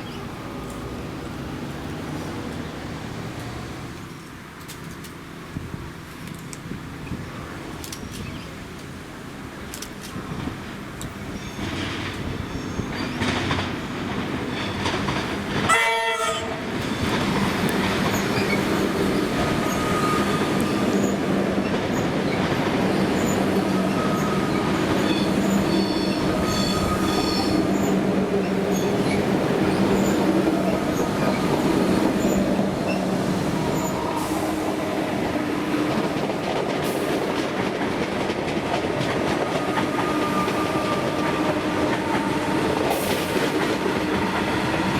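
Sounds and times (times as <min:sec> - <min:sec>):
train rumbling past: 0:00.0 - 0:44.9
train horn blast: 0:15.7 - 0:16.6, 0:39.4 - 0:44.9
wheels squealing: 0:18.0 - 0:34.5.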